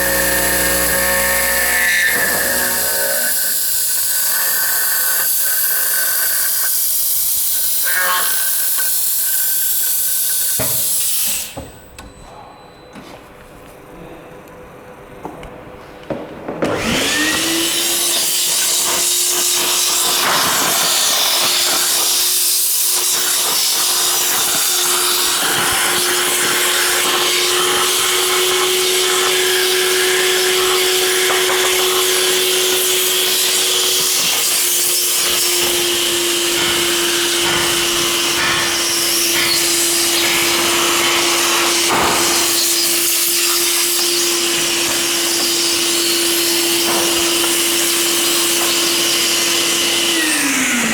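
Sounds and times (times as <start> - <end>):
router spindle motor whine: 0.0 - 6.3, 16.7 - 50.9
hiss of cutting steel: 0.0 - 11.6, 17.8 - 49.4.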